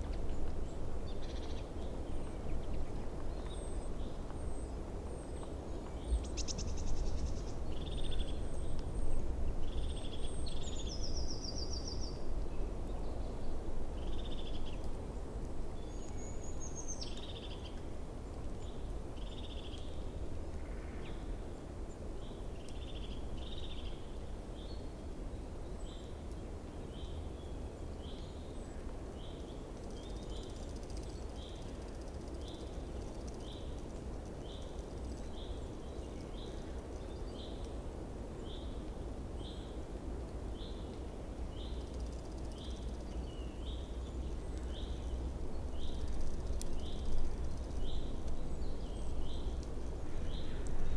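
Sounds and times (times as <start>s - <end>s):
small birds chirping: 0.0s - 15.0s, 15.7s - 50.9s.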